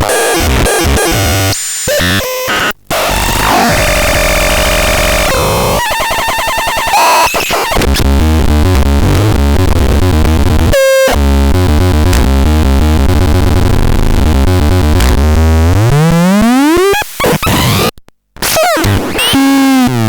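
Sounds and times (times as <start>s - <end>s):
glitchy synthesizer noise: 0.0s - 20.0s
pulsing low bass: 8.0s - 15.9s.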